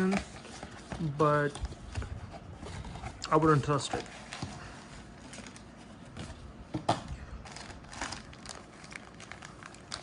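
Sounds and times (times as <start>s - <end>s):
packaging clicks and rustling: 7.4s - 10.0s.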